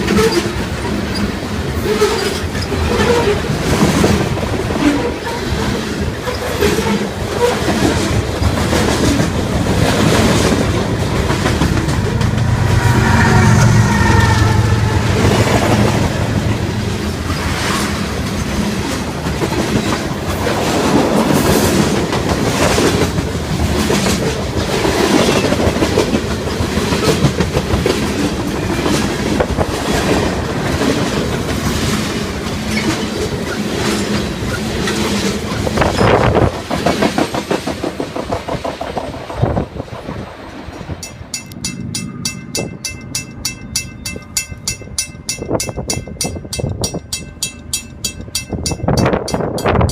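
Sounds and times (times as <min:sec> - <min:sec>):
train wheels clacking: 0:00.0 - 0:40.0, 0:40.7 - 0:49.9
fast high ringing: 0:41.0 - 0:49.9.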